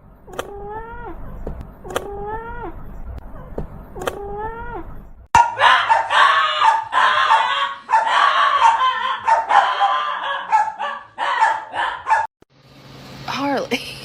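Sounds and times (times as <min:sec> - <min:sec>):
dog barking and yipping: 0:05.4 - 0:12.3.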